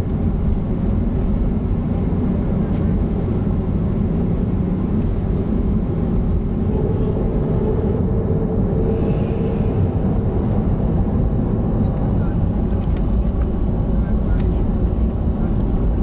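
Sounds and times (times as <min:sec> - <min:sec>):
jet engine rumble in cabin: 0:00.0 - 0:16.0
faint held hum: 0:04.1 - 0:15.9.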